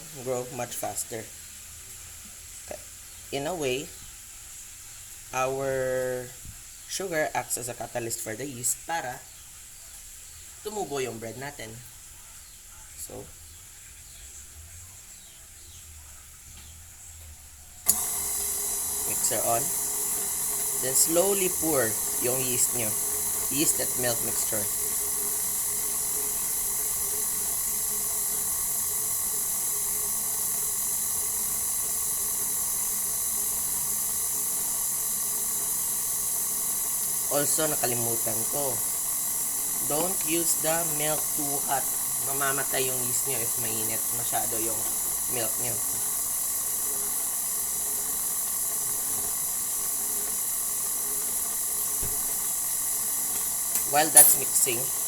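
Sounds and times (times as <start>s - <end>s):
stand mixer running: 17.3s - 55.0s.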